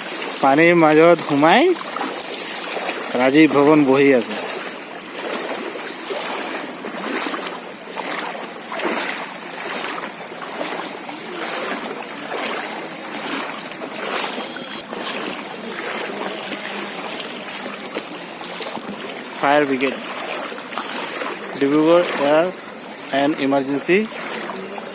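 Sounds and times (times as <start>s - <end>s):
floodwater sloshing and splashing: 0.0s - 24.9s.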